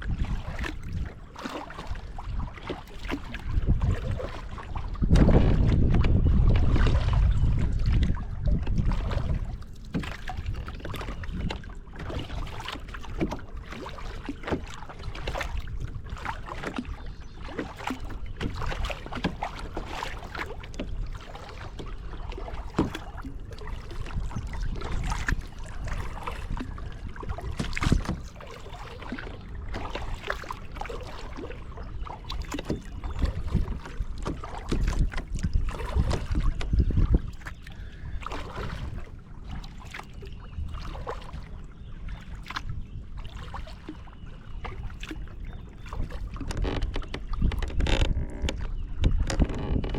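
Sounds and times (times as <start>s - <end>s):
paddle splashing water: 0.0s - 49.9s
knocks on kayak: 5.1s - 6.2s, 27.5s - 28.3s.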